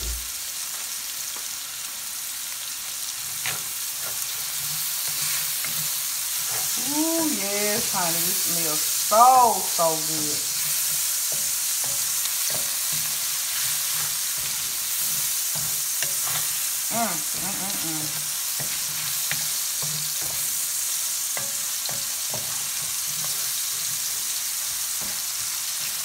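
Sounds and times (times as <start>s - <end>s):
vegetables sizzling in oil: 0.0s - 26.0s
wooden spoon scraping a pan: 3.2s - 7.1s, 10.0s - 26.0s.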